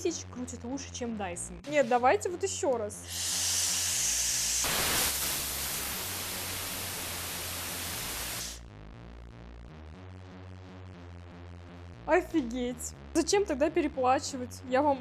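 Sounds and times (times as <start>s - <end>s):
background music with low beat: 0.0s - 3.0s, 8.6s - 15.0s
hair dryer blowing air: 3.1s - 8.6s.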